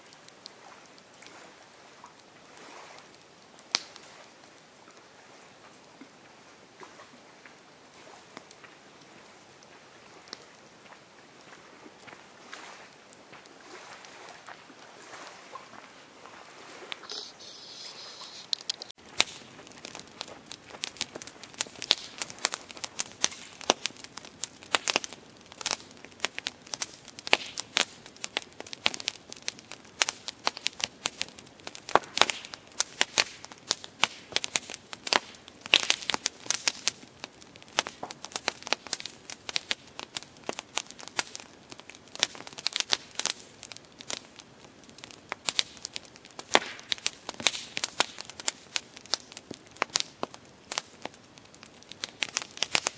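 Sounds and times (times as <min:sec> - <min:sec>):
campfire crackling: 0:00.0 - 0:52.9
soft hiss: 0:16.1 - 0:25.8.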